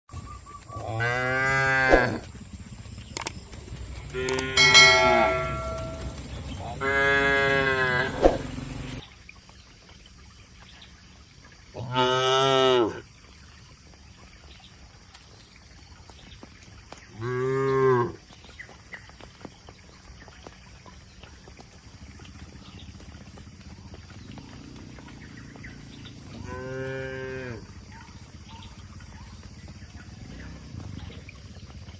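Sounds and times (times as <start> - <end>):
cow mooing: 0.9 - 2.2, 6.8 - 8.2, 26.4 - 27.7.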